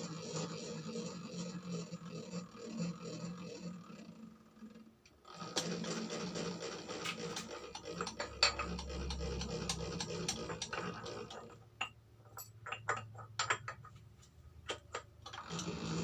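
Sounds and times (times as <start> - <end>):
boring machine running: 5.3 - 11.5, 15.3 - 16.0
sharp clicks and taps: 7.4 - 10.9.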